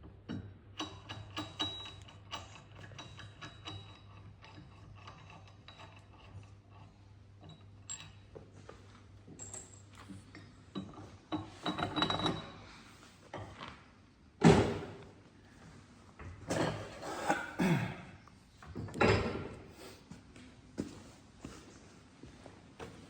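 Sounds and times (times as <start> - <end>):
tools and metal parts clunking: 0.2 - 13.6, 18.6 - 19.6.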